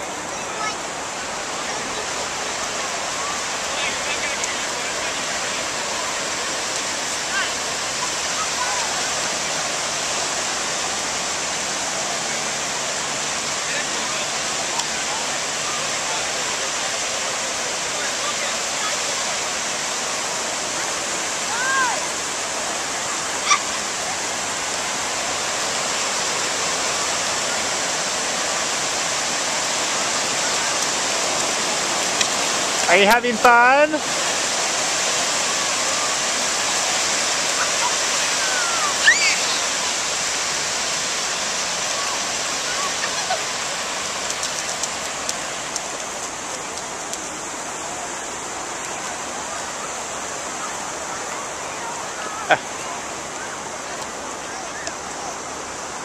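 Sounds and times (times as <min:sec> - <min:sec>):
ocean surf washing: 0:00.0 - 0:56.0
high-pitched cry: 0:38.4 - 0:39.6
faint crackles: 0:42.2 - 0:47.4.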